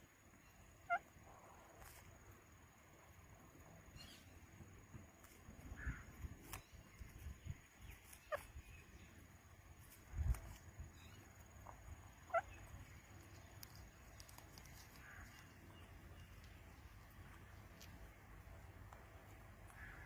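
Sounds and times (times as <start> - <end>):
parrot chirps: 0.4 - 1.1, 7.9 - 8.8, 12.0 - 15.5.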